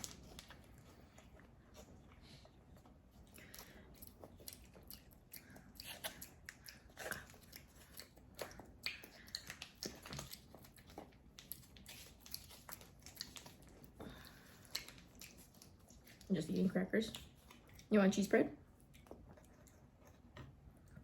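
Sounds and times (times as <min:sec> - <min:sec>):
crackers crunching: 0:00.0 - 0:16.3
soft chewing: 0:00.0 - 0:21.0.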